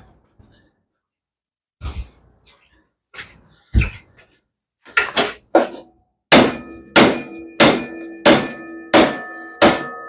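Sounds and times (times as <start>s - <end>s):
hammer striking metal: 6.3s - 10.0s.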